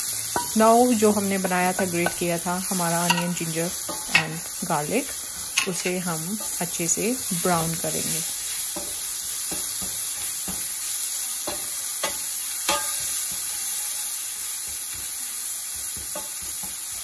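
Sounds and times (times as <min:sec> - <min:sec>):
food sizzling in a pan: 0:00.0 - 0:17.0
spoon striking a pan: 0:00.3 - 0:00.7, 0:01.9 - 0:04.5, 0:05.5 - 0:06.6, 0:08.7 - 0:10.7, 0:11.4 - 0:13.8, 0:15.7 - 0:17.0.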